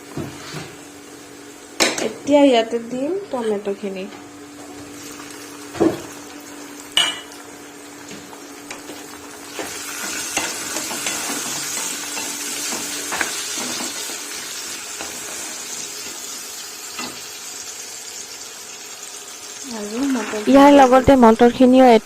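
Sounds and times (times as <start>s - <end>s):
food sizzling in hot oil: 4.4s - 22.0s.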